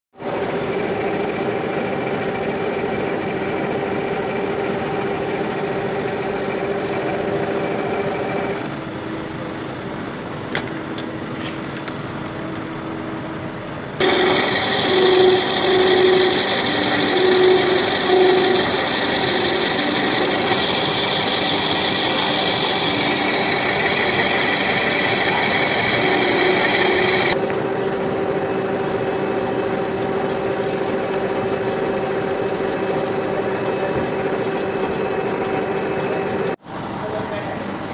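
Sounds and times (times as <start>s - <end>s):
lathe motor humming: 14.0s - 36.6s
lathe tool cutting metal: 14.0s - 36.6s.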